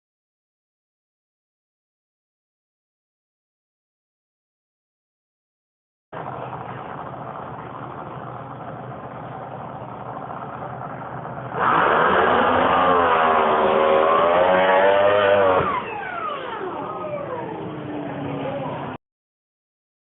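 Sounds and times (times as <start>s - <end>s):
boat engine roaring: 6.2s - 19.0s
falling whines winding down: 11.5s - 19.0s.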